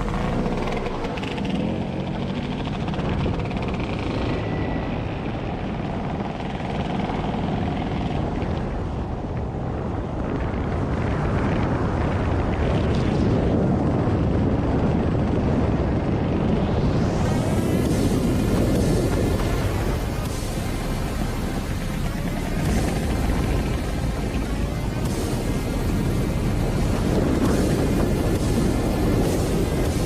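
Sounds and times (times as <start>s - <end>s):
motor scooter engine: 0.0s - 5.1s, 17.0s - 30.0s
wind rumble on microphone: 0.0s - 30.0s.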